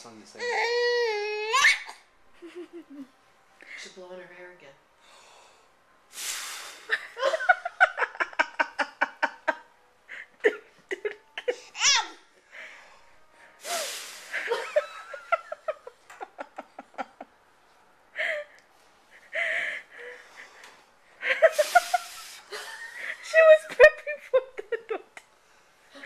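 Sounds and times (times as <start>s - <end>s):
puff of blown air: 6.1s - 7.0s, 13.6s - 14.5s, 21.5s - 22.5s.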